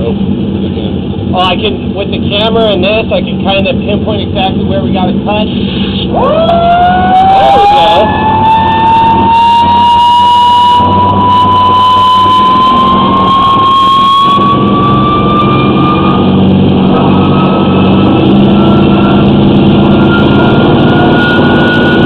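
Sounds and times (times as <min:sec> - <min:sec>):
engine drone: 0:00.0 - 0:22.0
high-pressure jet whine rising: 0:04.5 - 0:22.0.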